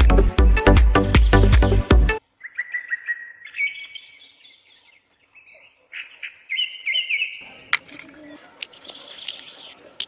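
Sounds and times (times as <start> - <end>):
small birds twittering: 2.3 - 10.0.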